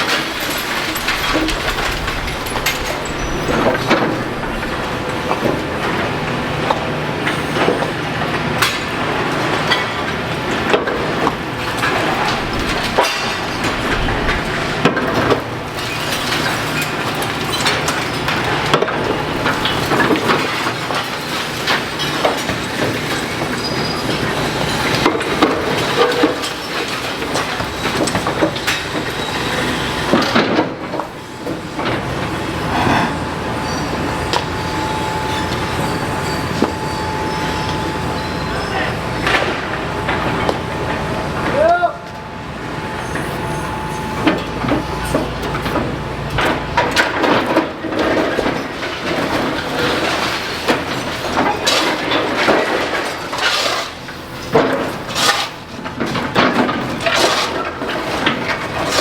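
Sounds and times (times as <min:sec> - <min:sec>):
clanks of steel and breaking masonry: 0:00.0 - 0:59.0
excavator diesel engine: 0:00.0 - 0:59.0
short metallic squeals: 0:33.5 - 0:39.3, 0:41.7 - 0:45.8.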